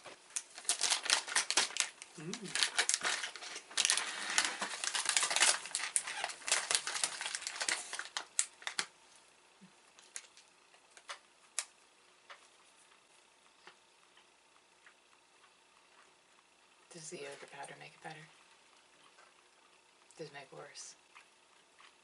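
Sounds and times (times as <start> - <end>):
plastic packaging crinkling: 0.0 - 9.0, 10.0 - 11.7.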